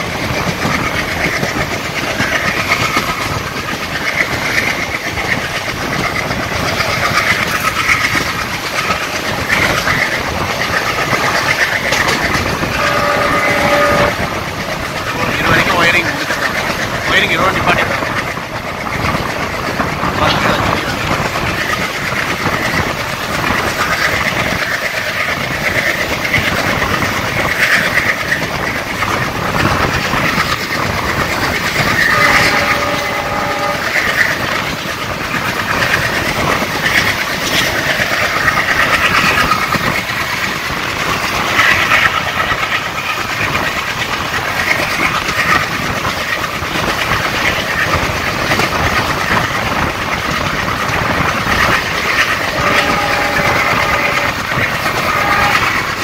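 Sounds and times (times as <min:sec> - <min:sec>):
rail-joint clatter: 0:00.0 - 0:56.0
train wheels rumbling: 0:00.0 - 0:56.0
train horn: 0:12.7 - 0:14.4, 0:32.0 - 0:34.2, 0:52.5 - 0:55.9.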